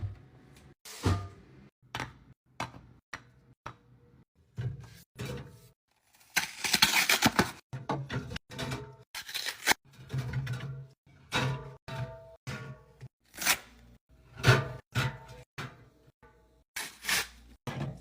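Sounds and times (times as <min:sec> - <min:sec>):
packaging tearing and crinkling: 0:06.1 - 0:07.6, 0:09.2 - 0:09.8.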